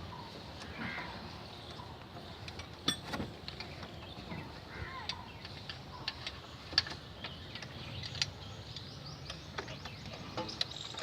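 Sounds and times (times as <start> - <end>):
hand tools clinking on metal: 2.4 - 3.7.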